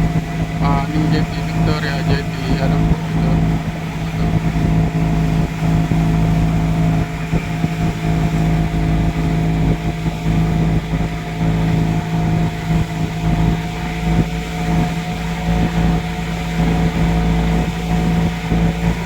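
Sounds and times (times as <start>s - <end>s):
water rumbling: 0.0s - 13.5s
boat engine drone: 0.0s - 19.0s.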